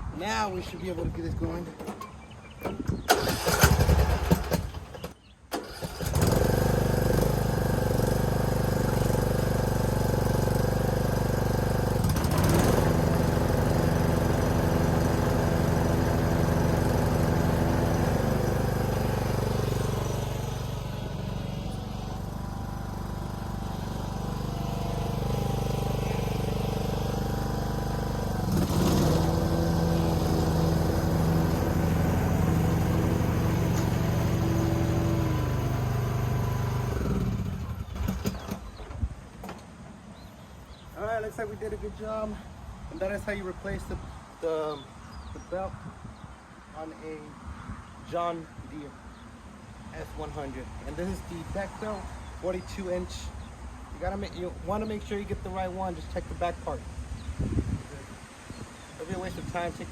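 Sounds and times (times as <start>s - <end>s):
starter cranking: 3.1s - 6.8s
mower engine running: 3.1s - 38.8s.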